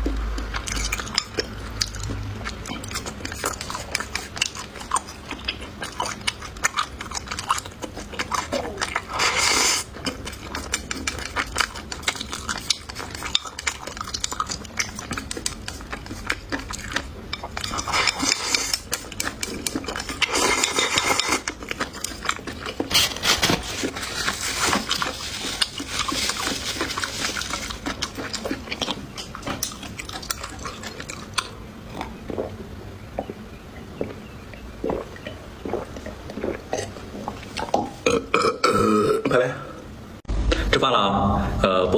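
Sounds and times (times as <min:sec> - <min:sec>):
person chewing: 0:00.0 - 0:39.2.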